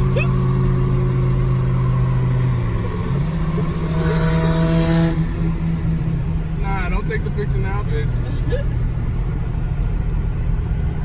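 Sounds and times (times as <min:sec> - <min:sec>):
car engine revving: 0:00.0 - 0:08.2.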